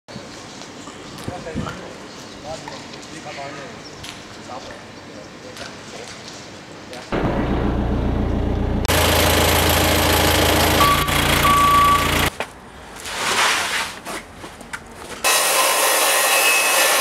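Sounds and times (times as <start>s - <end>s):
heavy vehicle engine running: 7.2s - 12.3s
short beeps: 10.8s - 12.3s.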